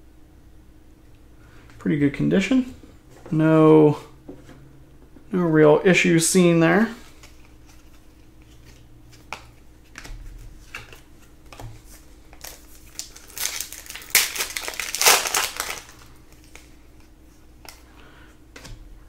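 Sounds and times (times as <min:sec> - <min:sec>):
wrapper crinkling: 0:12.4 - 0:16.7.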